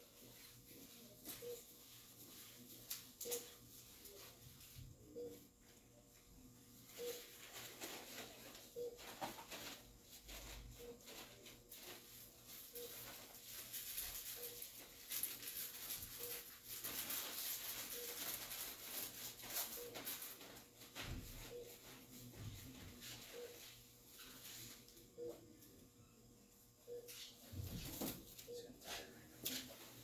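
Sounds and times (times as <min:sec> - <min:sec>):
rustling of surgical drapes: 0:06.9 - 0:21.0
faint short beeps: 0:26.9 - 0:27.2.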